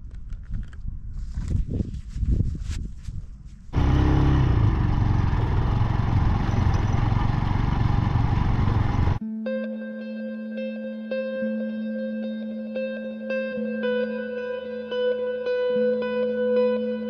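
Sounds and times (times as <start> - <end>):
motorcycle running loudly: 3.8 - 9.2.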